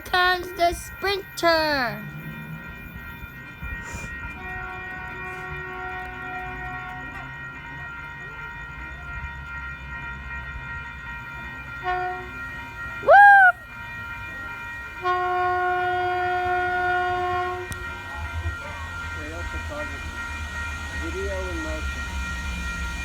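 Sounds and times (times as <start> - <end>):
train horn sounding: 0.0 - 8.2, 11.8 - 13.5, 14.8 - 23.0
low rumble of train: 0.0 - 23.0.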